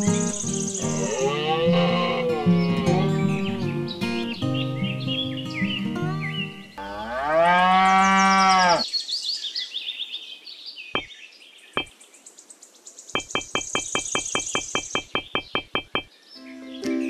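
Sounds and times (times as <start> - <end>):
high bird chirps: 0.0 - 1.2, 11.0 - 12.0, 13.2 - 16.1
cow mooing: 0.8 - 3.5, 6.8 - 8.8.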